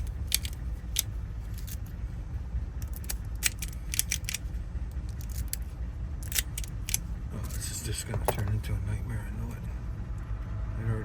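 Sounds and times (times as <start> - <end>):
key and lock metallic clicks: 0.0 - 1.8, 2.8 - 4.4, 6.2 - 7.0
steady low rumble: 0.0 - 11.0.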